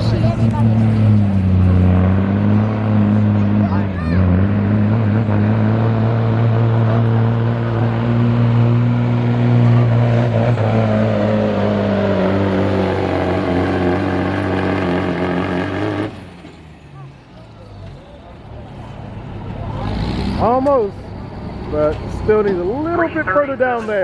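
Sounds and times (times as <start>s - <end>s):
diesel truck engine under load: 0.0s - 24.0s.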